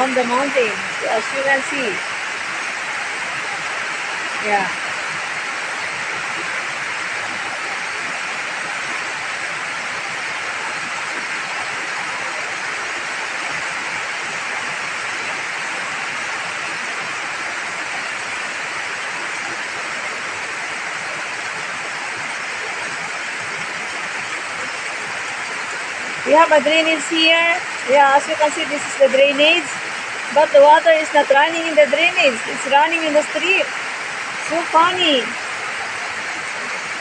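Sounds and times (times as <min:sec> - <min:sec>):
heavy rain and runoff rushing: 0:00.0 - 0:37.0.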